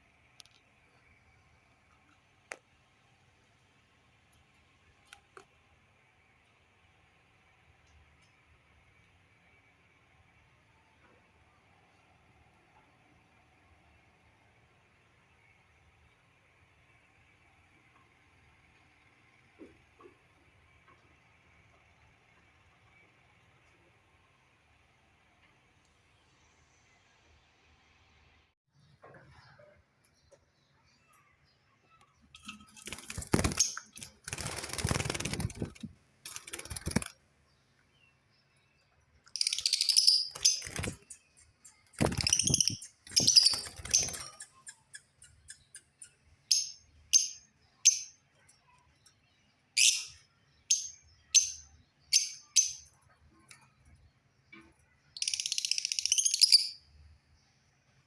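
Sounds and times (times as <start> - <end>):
wings flapping: 32.4 - 37.2, 39.5 - 41.3, 41.9 - 44.5
lovebirds chirping: 36.4 - 48.2.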